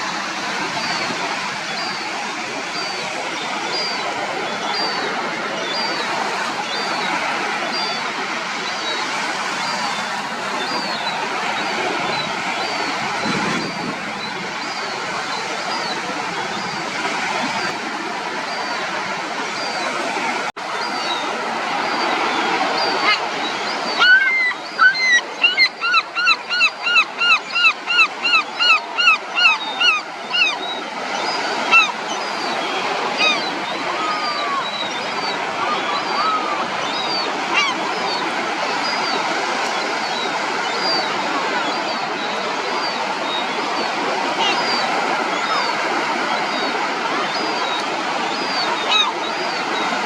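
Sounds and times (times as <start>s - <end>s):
surf washing on beach: 0.0s - 50.0s
adult gull calling rapidly: 22.8s - 30.6s.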